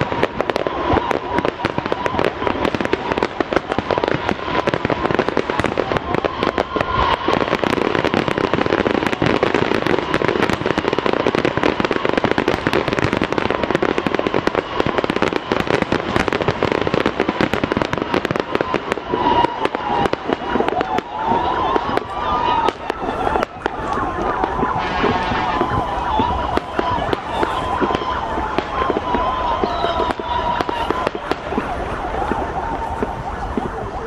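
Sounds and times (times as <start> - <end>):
fireworks crackling and popping: 0.0 - 34.0.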